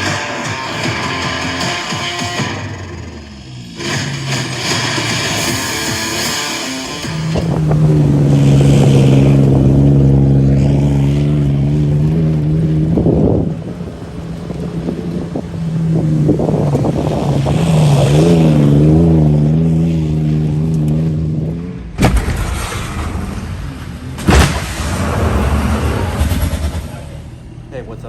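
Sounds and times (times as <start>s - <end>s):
sharp crack: 0.0s - 11.5s, 21.9s - 27.3s
vehicle engine running: 0.0s - 28.0s.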